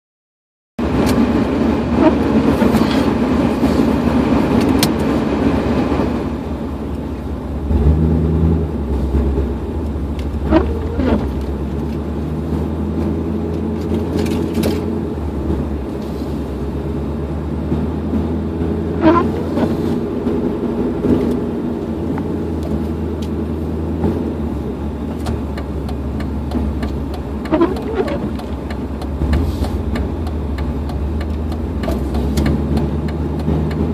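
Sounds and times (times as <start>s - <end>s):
pickup engine humming: 0.8s - 33.9s
faint short squeaks: 10.4s - 11.4s, 19.0s - 19.9s, 27.5s - 28.4s.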